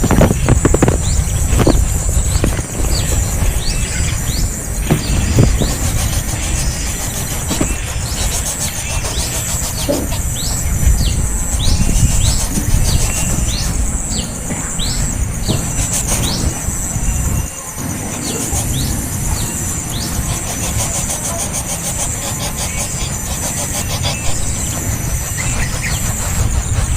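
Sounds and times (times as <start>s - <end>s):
low rumble: 0.0s - 20.6s
small bird calling: 0.0s - 26.9s.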